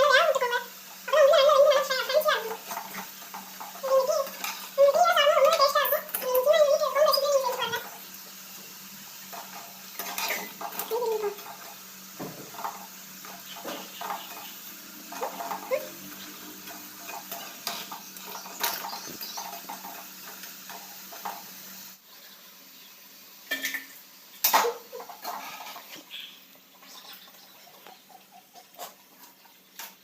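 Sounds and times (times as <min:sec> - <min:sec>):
metal utensils clinking on cookware: 0:01.2 - 0:08.1, 0:09.2 - 0:21.5, 0:23.4 - 0:26.1.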